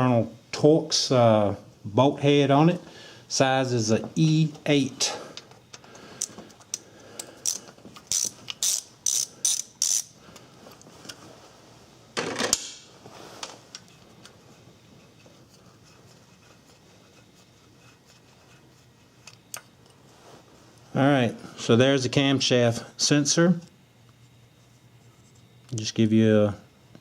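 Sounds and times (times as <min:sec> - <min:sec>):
ratchet wrench clicking: 0:06.2 - 0:10.2.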